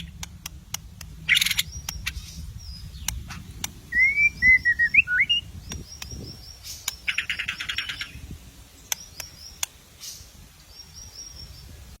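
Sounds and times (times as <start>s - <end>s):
thin high bird chirps: 1.2s - 11.7s.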